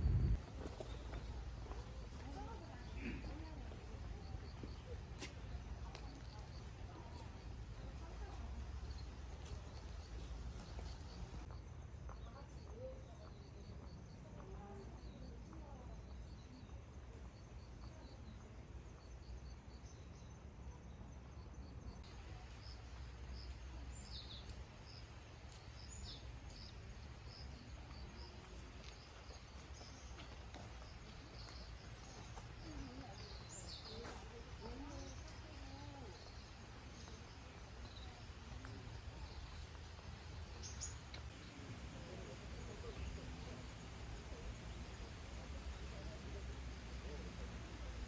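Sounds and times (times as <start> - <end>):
steady low rumble: 0.0 - 0.6
insect calls: 21.3 - 46.9.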